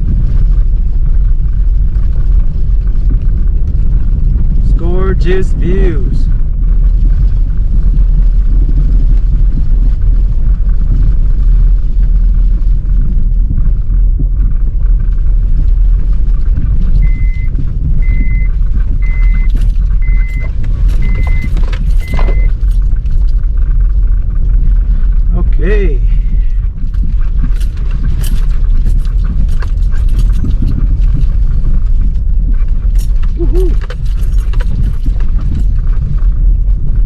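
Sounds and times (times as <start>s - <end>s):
low rumble of engine and tyres: 0.0s - 37.0s
vehicle chime beeping: 17.0s - 22.6s.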